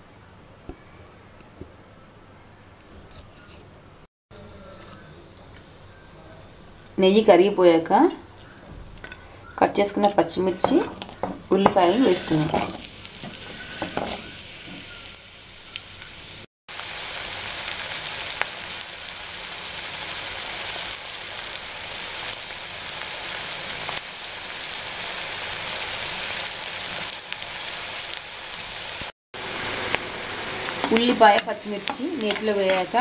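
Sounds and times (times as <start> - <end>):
onions sizzling in a pan: 10.0 - 33.0.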